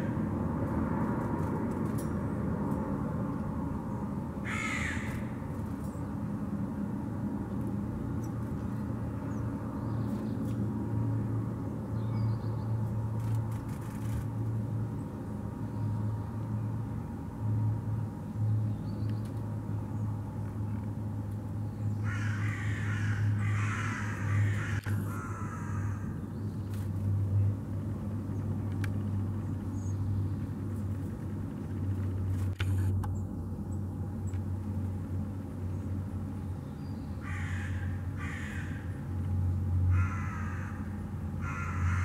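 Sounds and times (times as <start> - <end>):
harsh bird calls: 4.4 - 5.5, 21.7 - 26.8, 36.7 - 39.0, 39.9 - 42.0.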